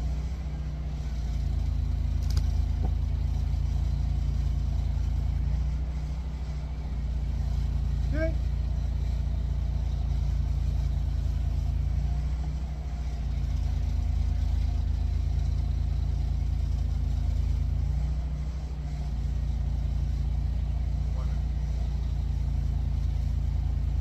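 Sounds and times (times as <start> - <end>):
engine humming: 0.0 - 24.0.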